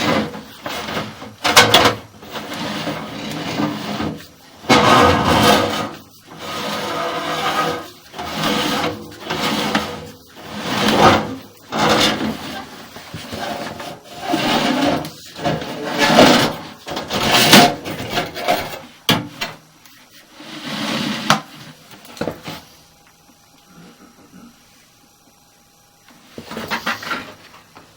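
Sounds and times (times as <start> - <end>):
camera scraping inside duct: 0.0 - 18.8
faint steady hum: 0.0 - 27.9.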